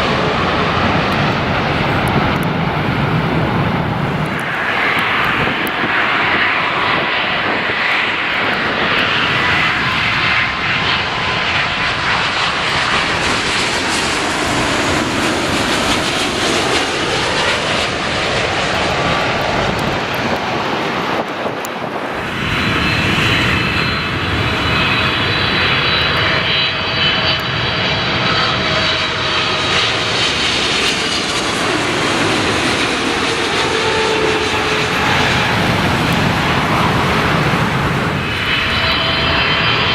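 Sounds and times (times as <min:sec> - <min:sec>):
jet engines roaring: 0:00.0 - 0:39.9
whining engine tone: 0:22.2 - 0:39.9.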